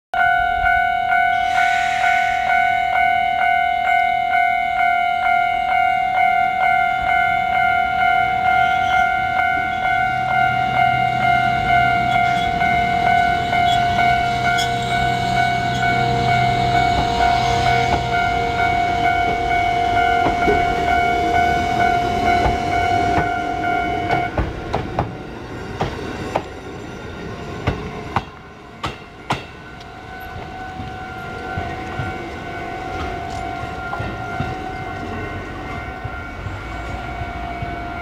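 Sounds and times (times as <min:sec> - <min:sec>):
crossing alarm ringing: 0:00.2 - 0:25.1, 0:28.3 - 0:38.0
train wheels clacking: 0:06.7 - 0:26.7, 0:27.6 - 0:38.0.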